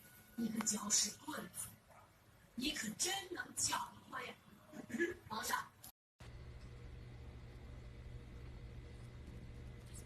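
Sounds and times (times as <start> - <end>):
low hum: 6.2 - 10.0.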